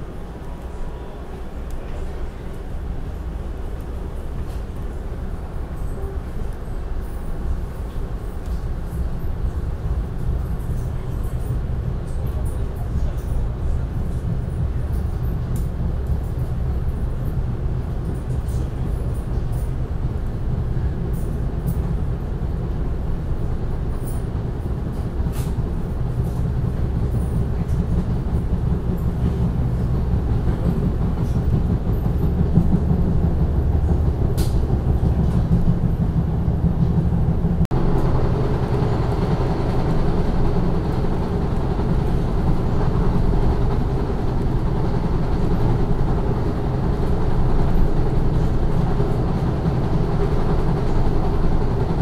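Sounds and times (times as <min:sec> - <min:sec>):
passenger train rumble: 0:00.0 - 0:52.0.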